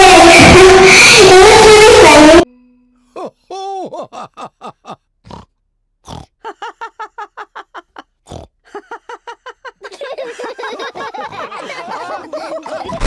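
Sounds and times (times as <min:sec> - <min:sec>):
cartoon pigs grunting and oinking: 0:03.6 - 0:06.4, 0:08.2 - 0:08.7
pig snorts: 0:05.2 - 0:06.3, 0:08.3 - 0:08.6.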